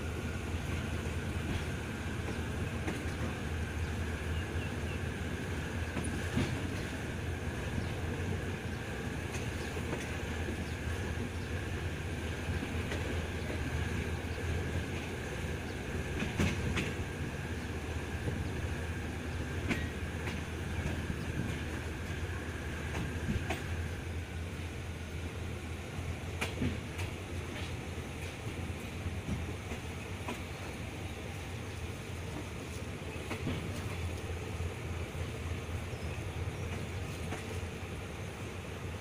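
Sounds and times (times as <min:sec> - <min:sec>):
rumble of wheels on rail: 0:00.0 - 0:39.0
clacks over rail joints: 0:00.6 - 0:04.0, 0:05.7 - 0:11.7, 0:12.5 - 0:24.0, 0:26.3 - 0:30.8, 0:32.3 - 0:34.7, 0:36.6 - 0:37.8.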